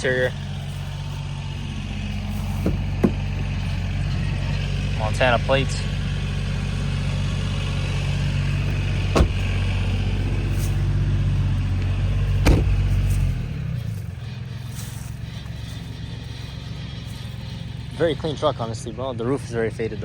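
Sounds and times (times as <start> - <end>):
vehicle engine idling: 0.0 - 20.0
sharp knocks: 9.1 - 9.5.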